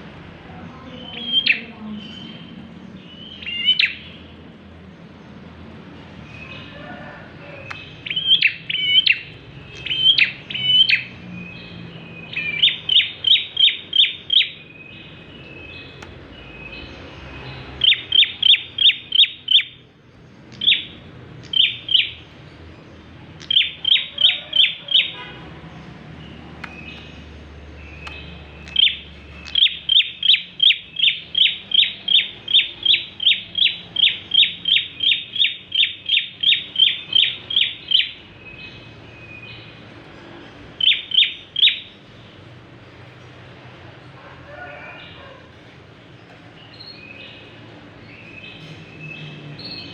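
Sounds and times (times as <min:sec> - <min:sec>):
bird singing sharp chirps: 0:07.6 - 0:19.9, 0:20.5 - 0:22.6, 0:23.4 - 0:39.8, 0:40.8 - 0:42.0.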